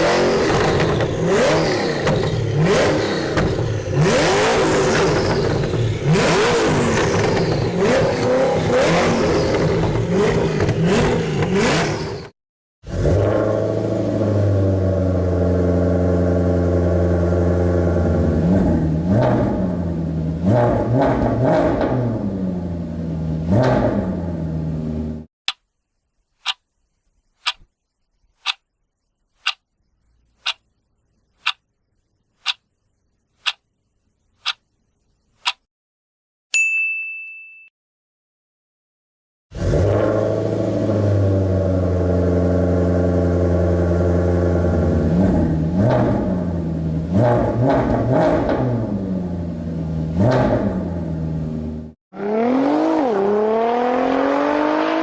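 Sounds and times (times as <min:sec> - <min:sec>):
car engine revving: 0:00.0 - 0:12.2, 0:39.6 - 0:55.0
clock ticking: 0:26.4 - 0:26.6, 0:27.4 - 0:27.7, 0:28.4 - 0:28.6, 0:29.4 - 0:29.6, 0:30.4 - 0:30.7, 0:31.4 - 0:31.6, 0:32.4 - 0:32.6, 0:33.4 - 0:33.7, 0:34.4 - 0:34.7, 0:35.4 - 0:35.7.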